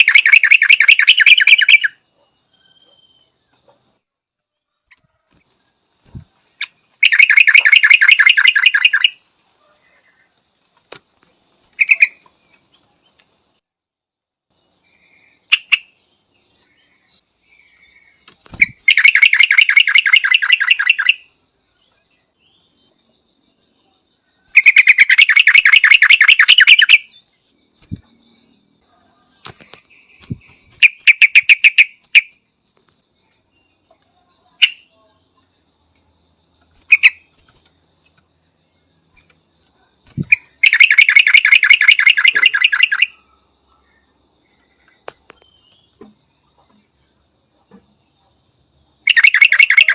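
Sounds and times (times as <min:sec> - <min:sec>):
bird chattering calls: 0:00.0 - 0:02.0, 0:06.6 - 0:09.2, 0:11.8 - 0:12.2, 0:18.5 - 0:21.2, 0:24.6 - 0:27.1, 0:29.4 - 0:32.3, 0:40.2 - 0:43.2, 0:49.1 - 0:49.9.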